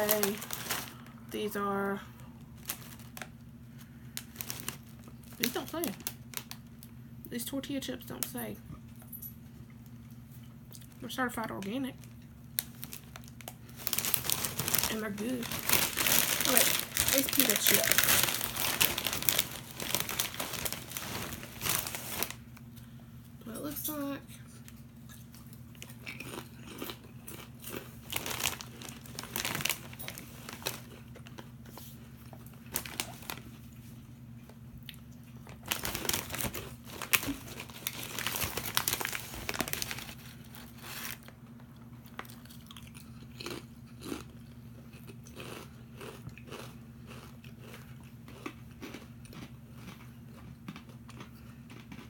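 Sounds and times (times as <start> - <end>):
crunchy chips being chewed: 2.5 - 7.0, 12.0 - 22.4, 24.6 - 33.9, 34.8 - 52.0.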